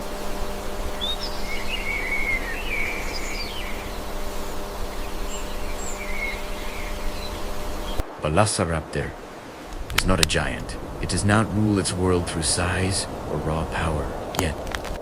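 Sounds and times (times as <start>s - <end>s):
birds calling: 0.0s - 15.0s
faint hum: 0.0s - 15.0s.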